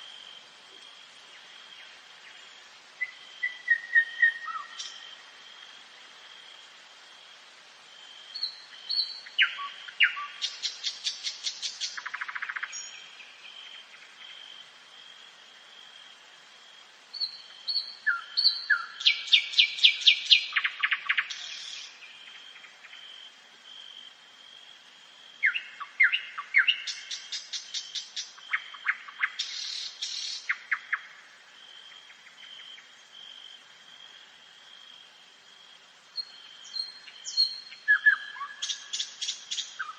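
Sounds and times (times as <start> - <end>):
nightingale singing: 1.3 - 5.2, 8.3 - 14.3, 17.1 - 23.2, 25.4 - 31.2, 36.1 - 39.9.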